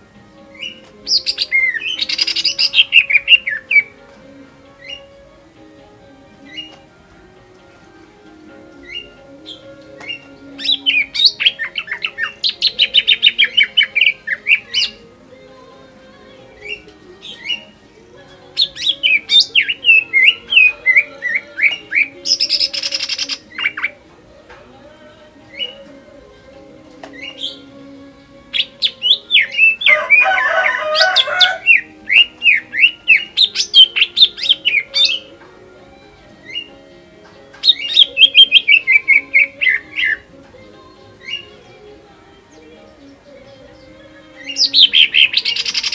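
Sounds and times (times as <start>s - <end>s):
fast run of sharp bird notes: 0.0s - 4.0s
bird chirps: 0.4s - 4.0s, 6.4s - 6.9s, 8.8s - 15.2s, 16.5s - 24.0s, 27.1s - 35.4s, 36.2s - 40.3s, 41.2s - 41.9s, 42.5s - 45.9s.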